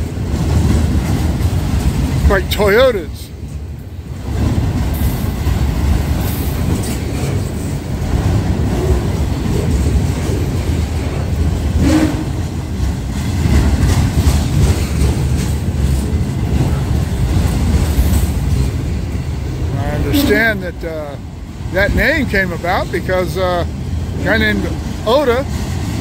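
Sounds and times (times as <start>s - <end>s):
train wheels rumbling on rail: 0.0s - 26.0s
wheel clicks over rail joints: 4.2s - 18.9s.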